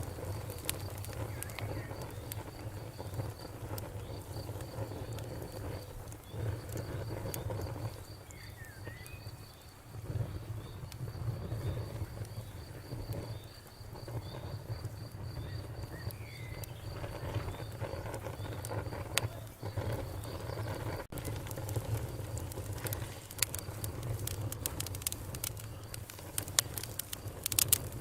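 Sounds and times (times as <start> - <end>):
campfire crackling and popping: 0.0 - 28.0
cricket chirping: 0.0 - 28.0
bird-like chirps: 8.2 - 9.8, 15.2 - 20.7.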